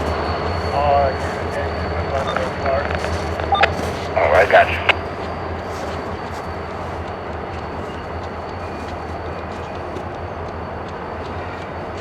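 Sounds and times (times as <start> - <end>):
train rumbling by: 0.0 - 12.0.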